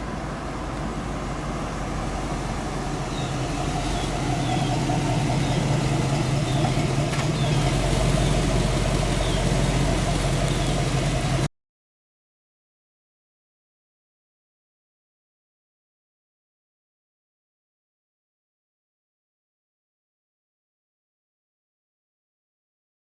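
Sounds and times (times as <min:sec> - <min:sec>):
car engine running: 0:00.0 - 0:11.5.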